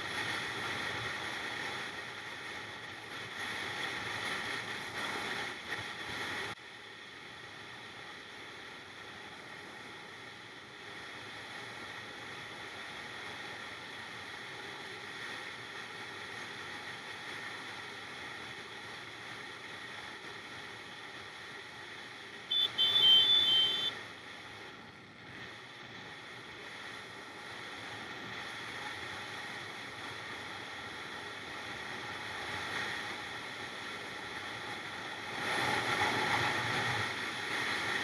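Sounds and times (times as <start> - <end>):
motorcycle engine running: 22.4 - 23.9
loud high-pitched blare: 22.5 - 23.9.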